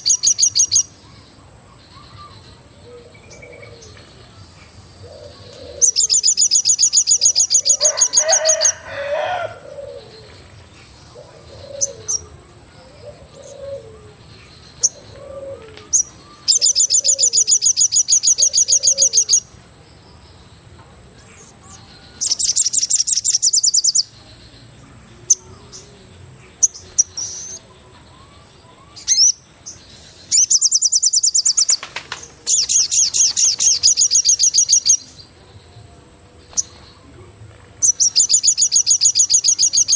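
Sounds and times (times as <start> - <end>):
rapid high bird chirping: 0.0 - 2.5, 5.1 - 8.8, 15.9 - 19.6, 22.2 - 35.2, 37.8 - 39.9.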